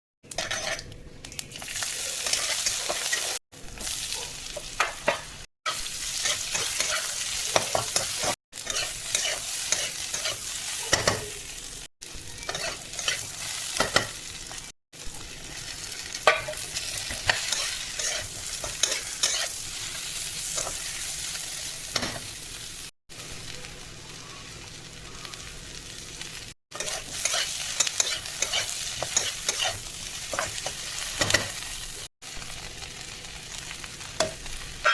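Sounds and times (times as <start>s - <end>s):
spatula scraping a pan: 0.3s - 0.8s, 2.1s - 4.0s, 4.6s - 11.3s, 12.4s - 14.6s, 15.6s - 21.0s, 26.7s - 31.7s
potatoes sizzling in oil: 1.5s - 34.9s.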